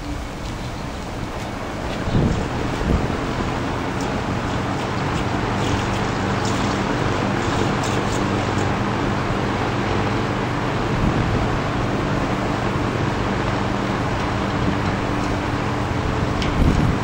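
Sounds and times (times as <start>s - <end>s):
box fan running: 0.0s - 17.0s.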